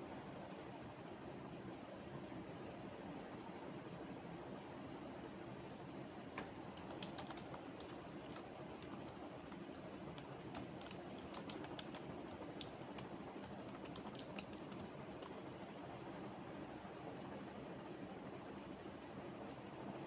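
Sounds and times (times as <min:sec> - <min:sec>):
low room hum: 0:00.0 - 0:20.0
typing on computer keyboard: 0:06.4 - 0:15.4.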